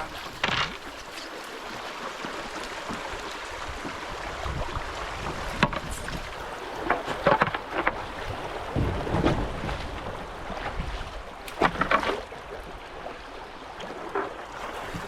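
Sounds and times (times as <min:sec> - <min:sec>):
water rushing: 0:00.0 - 0:15.0
wind on microphone: 0:03.6 - 0:11.4.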